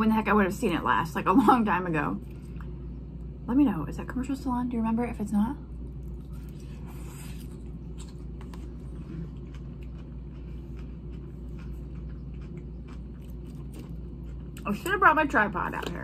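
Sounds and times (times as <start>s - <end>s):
steady low hum: 0.0s - 16.0s
crunchy salad chewing: 6.0s - 14.9s.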